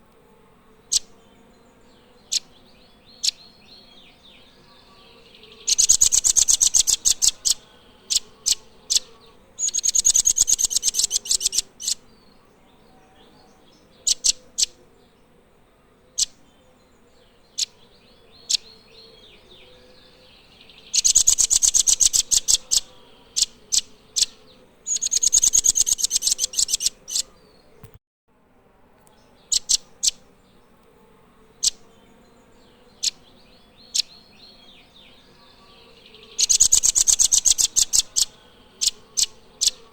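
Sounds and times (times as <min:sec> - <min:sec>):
nuthatch trilling: 0:00.9 - 0:01.1, 0:02.2 - 0:03.6, 0:04.9 - 0:12.0, 0:14.0 - 0:14.8, 0:18.4 - 0:19.2, 0:19.8 - 0:27.4, 0:29.5 - 0:30.3, 0:31.6 - 0:31.8, 0:33.0 - 0:39.9.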